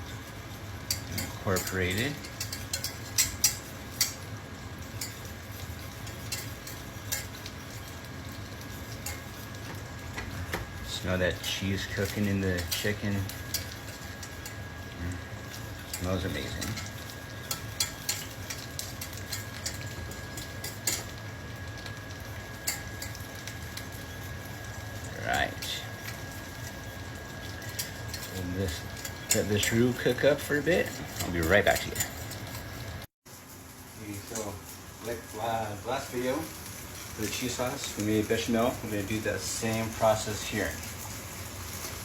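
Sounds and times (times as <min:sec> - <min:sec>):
hot oil sizzling: 0:00.0 - 0:42.0
utensil clicking against pan: 0:00.8 - 0:08.0, 0:08.6 - 0:10.8, 0:11.4 - 0:14.7, 0:15.4 - 0:24.0, 0:25.9 - 0:32.7.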